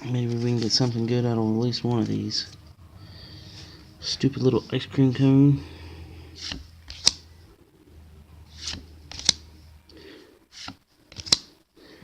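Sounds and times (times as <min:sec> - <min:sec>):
trading cards swishing: 0:06.3 - 0:07.3, 0:08.5 - 0:09.5, 0:10.5 - 0:11.5.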